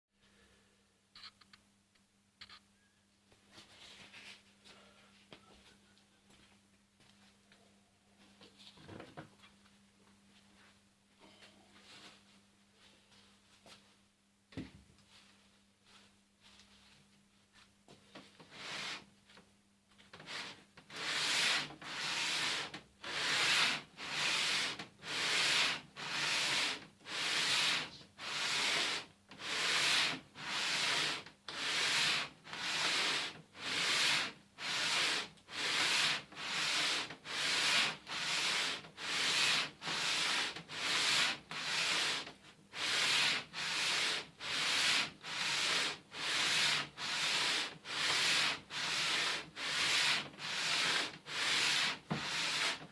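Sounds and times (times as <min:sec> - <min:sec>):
metal rasping on abrasive paper: 0:20.2 - 0:52.9.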